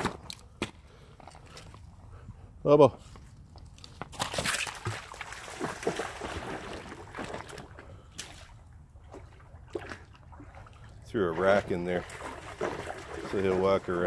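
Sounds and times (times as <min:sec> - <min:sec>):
rock splashing into water: 0:04.1 - 0:08.5
dog splashing through water: 0:04.2 - 0:14.0.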